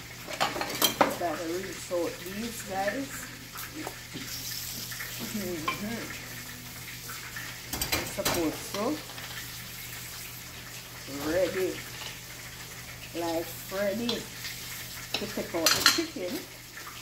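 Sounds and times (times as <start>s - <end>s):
chicken sizzling in hot oil: 0.0s - 17.0s
cookware clattering: 0.3s - 1.2s, 7.7s - 8.9s, 15.1s - 16.2s.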